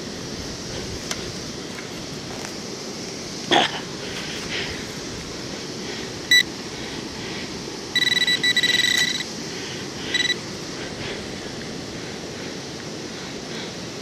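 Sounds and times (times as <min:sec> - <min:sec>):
wind noise: 0:00.0 - 0:02.6
metal detector beeping: 0:06.3 - 0:06.5, 0:07.9 - 0:09.4, 0:10.0 - 0:10.5.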